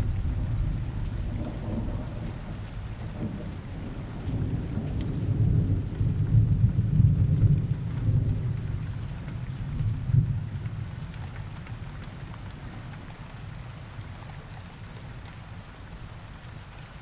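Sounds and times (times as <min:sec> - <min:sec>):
low roll of thunder: 0:00.0 - 0:11.2
steady rain: 0:00.0 - 0:17.0.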